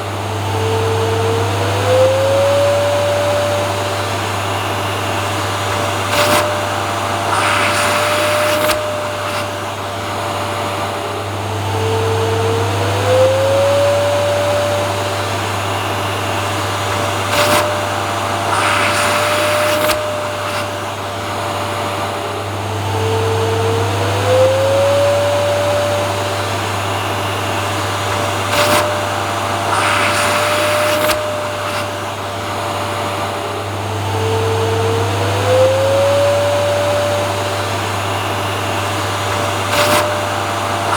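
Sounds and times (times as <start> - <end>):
vacuum cleaner running: 0.0 - 40.9
hiss with a knock: 5.7 - 9.7, 17.0 - 20.9.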